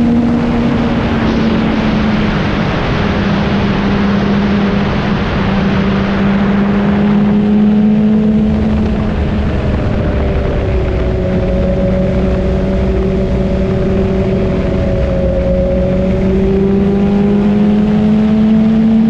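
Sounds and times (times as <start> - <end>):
motorcycle engine cruising: 0.0 - 19.0.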